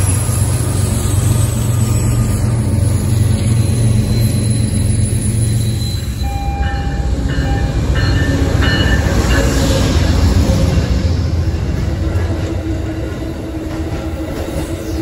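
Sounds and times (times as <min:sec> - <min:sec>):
freight train rumbling past: 0:00.0 - 0:15.0
short high train tones: 0:01.6 - 0:09.8.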